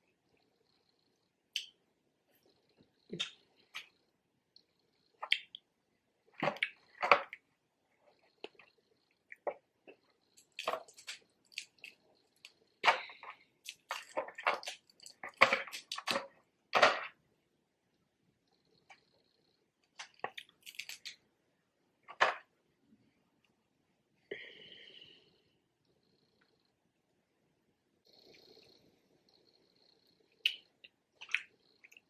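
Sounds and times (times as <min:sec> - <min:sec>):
wet chewing: 0:09.3 - 0:16.4, 0:19.9 - 0:21.2, 0:30.4 - 0:32.0
crab shell cracking: 0:20.0 - 0:21.2.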